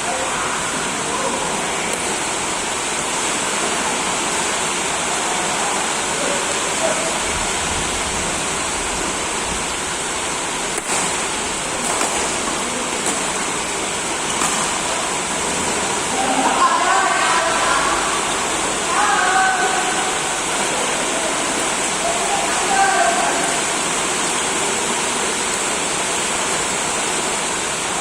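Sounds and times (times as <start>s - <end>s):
rackets striking shuttlecock: 10.8s - 13.6s, 14.3s - 14.9s.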